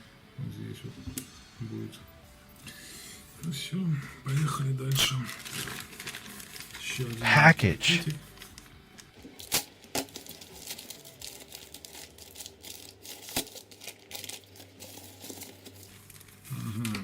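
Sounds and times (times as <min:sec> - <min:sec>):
plastic packaging crinkling and tearing: 0:05.1 - 0:07.2, 0:09.4 - 0:17.0.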